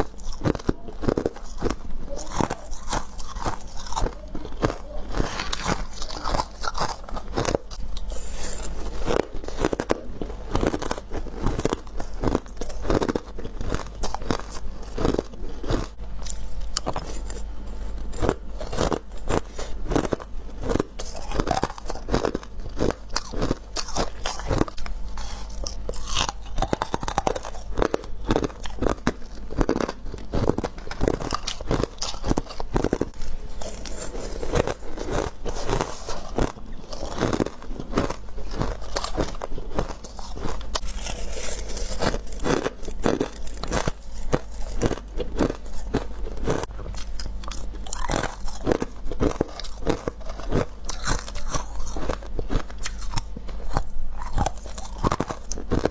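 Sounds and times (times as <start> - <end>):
crunching ice chewing: 0.0 - 55.9
steady low hum: 0.0 - 55.9.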